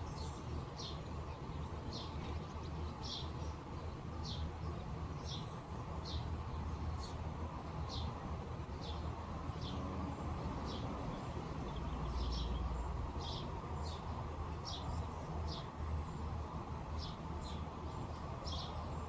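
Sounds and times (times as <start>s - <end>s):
bird chirping: 8.8s - 16.3s, 17.0s - 19.0s.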